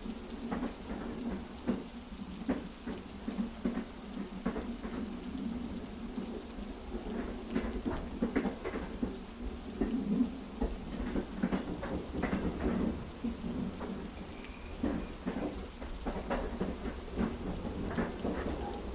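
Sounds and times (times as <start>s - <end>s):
heavy rain: 0.0s - 18.9s
train carriage rumble: 0.2s - 18.9s
wheels clacking over rail joints: 7.2s - 18.9s.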